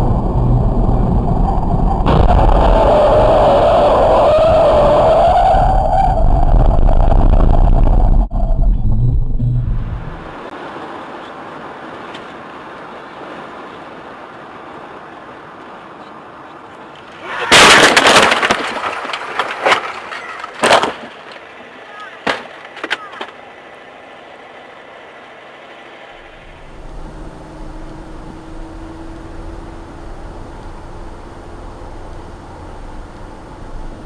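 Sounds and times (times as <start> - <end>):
road noise inside a car: 0.0 - 16.5, 21.3 - 34.0
loud crash: 2.0 - 3.7, 17.4 - 21.1
sharp bangs: 17.5 - 21.1.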